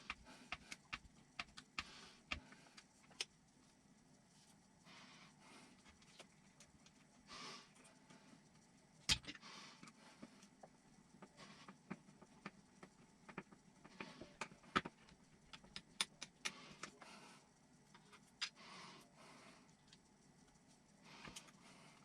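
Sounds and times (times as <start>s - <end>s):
clicks and taps of small parts: 11.2s - 17.0s.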